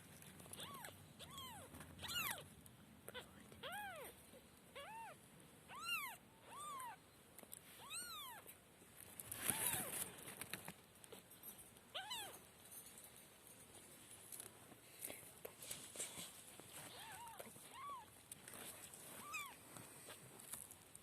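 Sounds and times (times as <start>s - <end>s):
kitten meowing: 0.6s - 2.4s, 3.1s - 4.2s, 4.8s - 7.0s, 7.8s - 8.5s, 19.2s - 19.6s.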